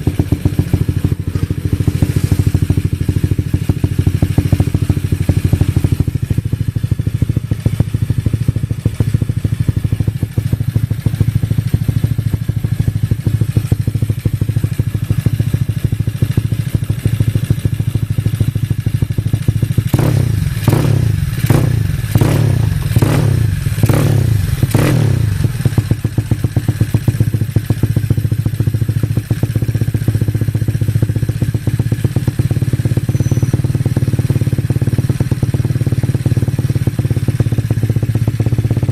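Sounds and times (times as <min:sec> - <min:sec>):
scooter engine running: 0:00.0 - 0:38.9.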